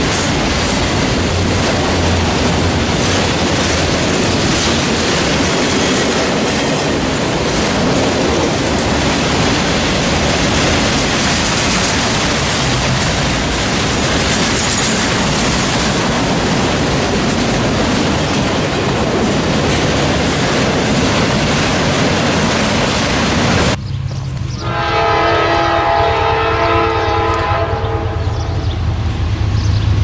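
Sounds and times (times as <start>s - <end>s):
freight train rolling past: 0.0s - 30.0s
locomotive air horn blasts: 24.6s - 28.6s.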